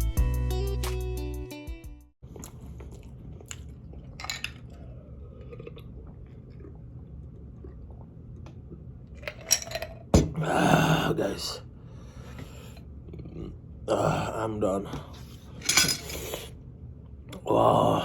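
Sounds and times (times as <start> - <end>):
quiet chewing: 2.3 - 8.9
steady low hum: 2.3 - 18.0.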